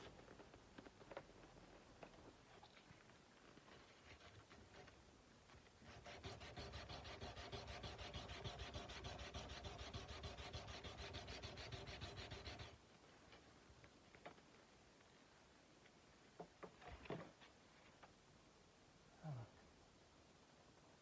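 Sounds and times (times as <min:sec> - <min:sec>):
sandpaper rubbing on steel blade: 0:05.9 - 0:12.8.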